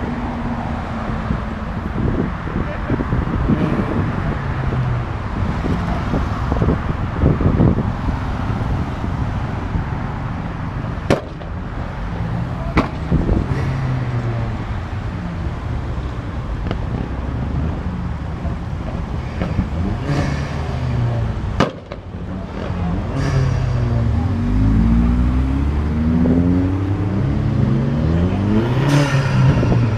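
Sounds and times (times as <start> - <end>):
car engines revving: 0.0 - 29.9
sharp cracks: 21.6 - 22.1.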